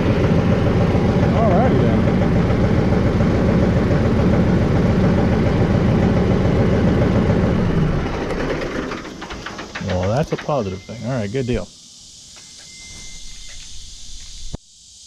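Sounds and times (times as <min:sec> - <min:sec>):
tractor diesel engine idling: 0:00.0 - 0:11.7.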